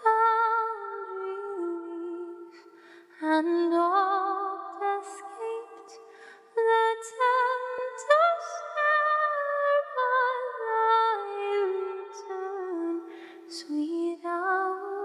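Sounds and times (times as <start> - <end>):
a cappella hymn singing: 6.6 - 15.0.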